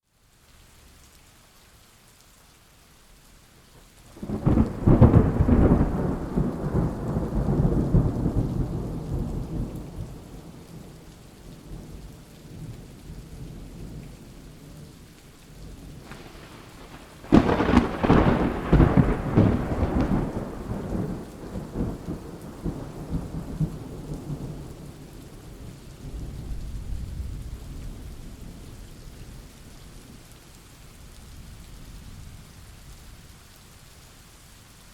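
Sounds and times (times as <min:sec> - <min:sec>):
steady rain: 0:00.0 - 0:34.9
thunder claps rumbling: 0:04.2 - 0:11.0, 0:15.8 - 0:28.7.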